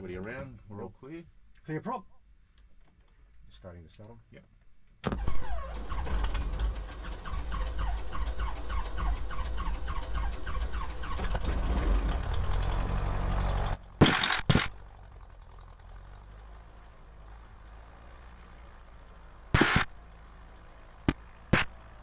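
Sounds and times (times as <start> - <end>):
loud short knocks: 14.0 - 14.8, 19.6 - 19.9, 21.1 - 21.8.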